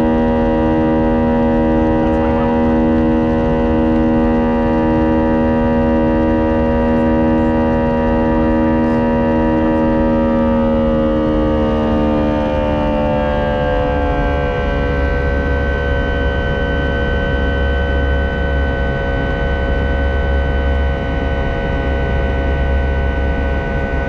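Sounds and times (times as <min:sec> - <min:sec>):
jet engines running: 0:00.0 - 0:24.0.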